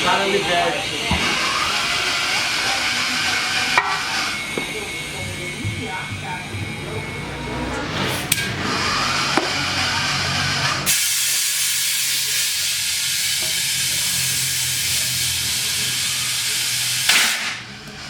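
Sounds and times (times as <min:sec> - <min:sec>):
low machine hum: 0:00.0 - 0:11.3
compressed air hissing: 0:10.9 - 0:18.0.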